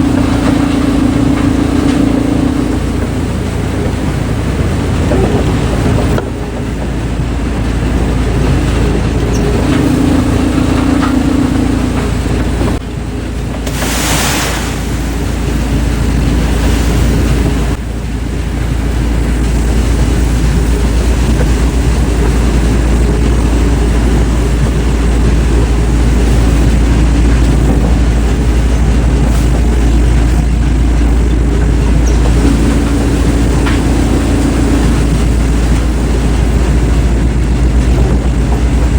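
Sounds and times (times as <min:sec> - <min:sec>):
wood-processing machinery grinding: 0:00.0 - 0:17.8, 0:18.9 - 0:38.9
brief loud hiss: 0:13.7 - 0:15.0.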